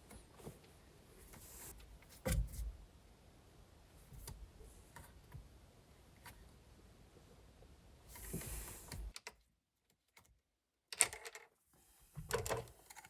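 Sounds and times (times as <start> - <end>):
tools and parts clicking and knocking: 10.9 - 11.6.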